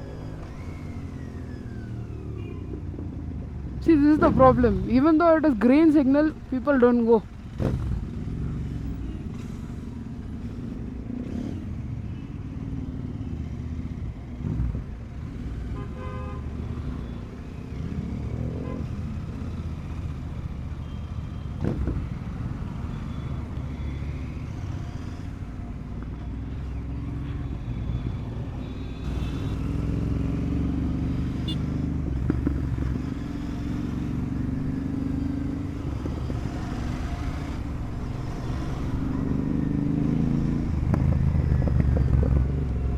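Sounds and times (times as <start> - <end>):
vehicle horn beeps: 2.4 - 2.8, 15.8 - 17.2, 28.6 - 29.7, 31.4 - 31.8
motorcycle engine running: 16.6 - 42.9.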